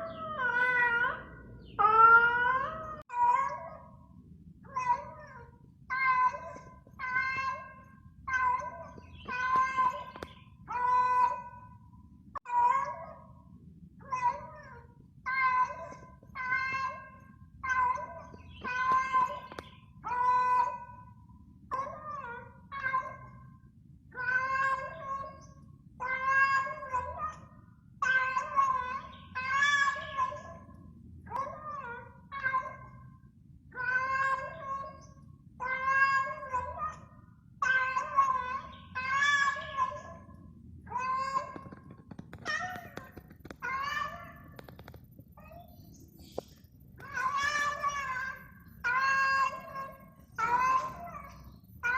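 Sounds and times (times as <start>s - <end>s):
cat meowing mournfully: 26.0s - 27.1s, 28.0s - 30.4s, 35.6s - 36.7s, 40.9s - 44.7s, 47.0s - 51.9s.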